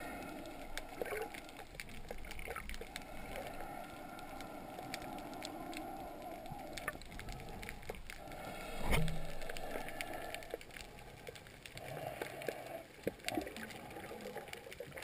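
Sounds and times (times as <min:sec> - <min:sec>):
small scattered clicks: 0:00.0 - 0:15.0
underwater water noise: 0:00.0 - 0:15.0.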